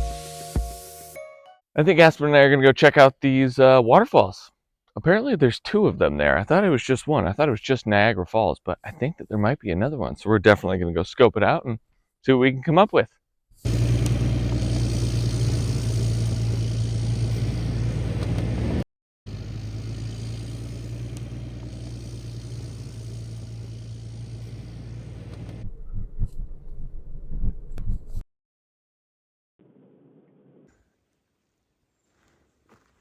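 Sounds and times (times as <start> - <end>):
road noise: 13.7 - 25.6
vehicle engine hum: 13.7 - 25.8.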